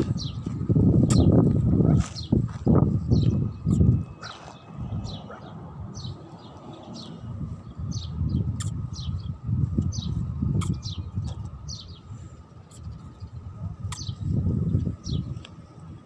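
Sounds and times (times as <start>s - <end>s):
shoes scuffing on gritty ground: 0.0s - 3.4s, 4.2s - 5.4s
small birds chirping: 0.0s - 16.0s.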